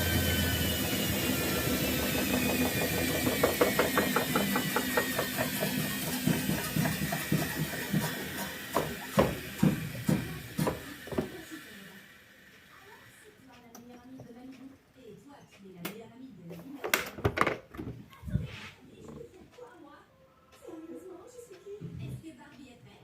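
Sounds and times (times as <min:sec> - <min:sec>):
washing machine drum knocking: 0:00.0 - 0:11.5
washing machine motor whine: 0:00.0 - 0:14.7.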